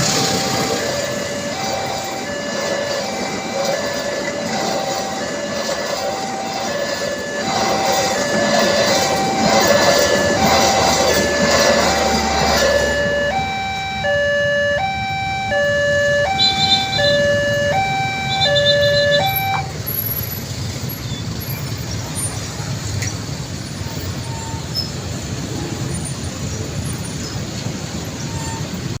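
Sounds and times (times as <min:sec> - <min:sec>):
two-tone crossing alarm: 0:00.0 - 0:21.0, 0:23.7 - 0:25.8.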